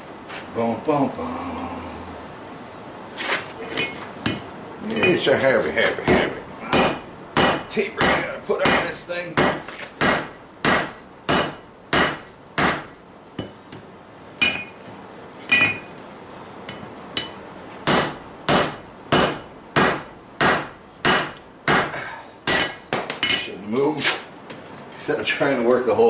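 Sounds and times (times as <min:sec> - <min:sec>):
hammer striking steel on anvil: 0:06.1 - 0:13.5, 0:17.2 - 0:23.5.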